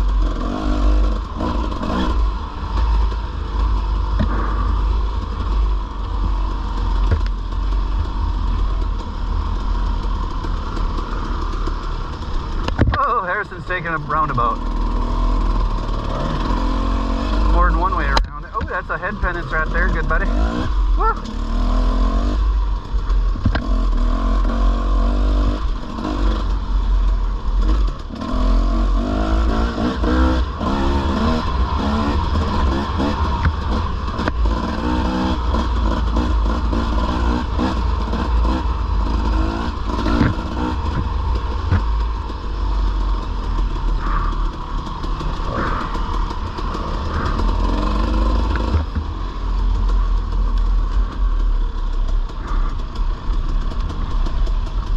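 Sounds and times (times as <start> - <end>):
dirt bike engine revving: 0.0 - 54.9
knocks and rattles: 29.4 - 54.9.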